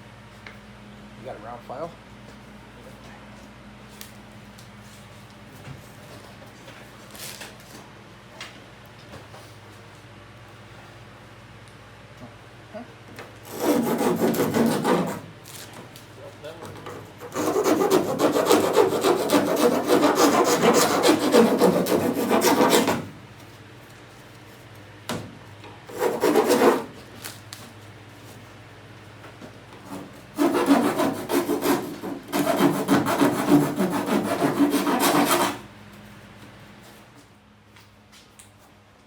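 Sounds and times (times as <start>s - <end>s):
hand file rasping on fibreglass: 13.5s - 15.3s, 17.2s - 23.1s, 25.9s - 26.9s, 29.8s - 35.6s.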